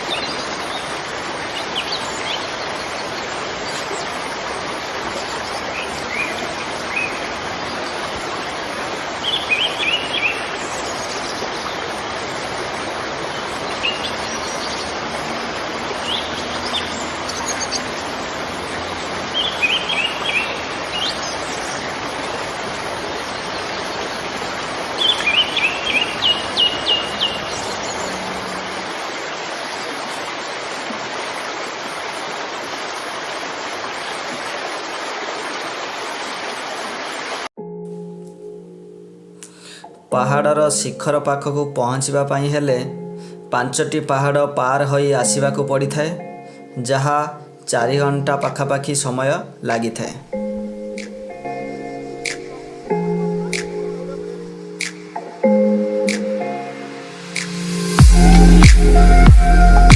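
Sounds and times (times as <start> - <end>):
water rushing: 0.0 - 37.6, 47.4 - 59.9
bird chirping: 9.2 - 11.8, 13.2 - 28.9.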